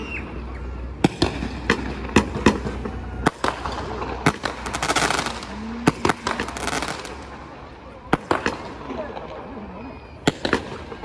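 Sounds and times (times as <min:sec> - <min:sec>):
fireworks crackling: 0:00.0 - 0:11.0
fireworks banging: 0:00.8 - 0:11.0.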